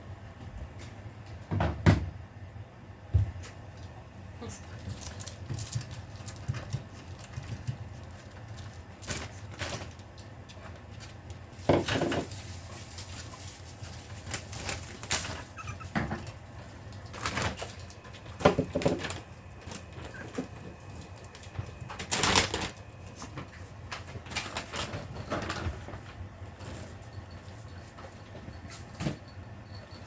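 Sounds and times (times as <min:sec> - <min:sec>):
puppy whimpering and squeaking: 0:15.2 - 0:16.4, 0:20.0 - 0:20.6.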